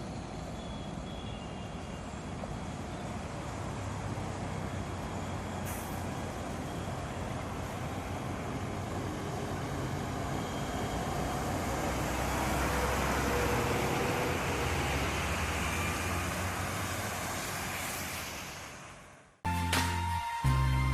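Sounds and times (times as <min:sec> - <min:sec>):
road traffic: 0:00.0 - 0:20.9
heavy vehicle passing: 0:11.0 - 0:19.1.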